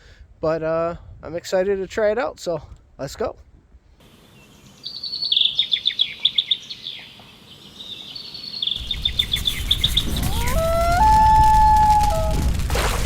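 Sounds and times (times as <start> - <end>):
songbird chirps and trills: 4.0 - 10.2.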